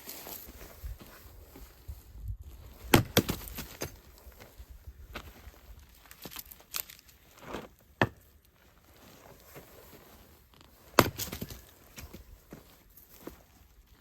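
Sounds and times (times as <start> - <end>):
rustling and scraping: 0.0 - 14.0.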